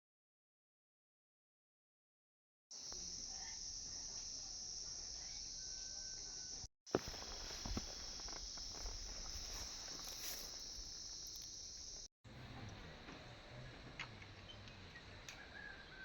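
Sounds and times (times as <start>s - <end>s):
insects buzzing: 2.7s - 12.1s.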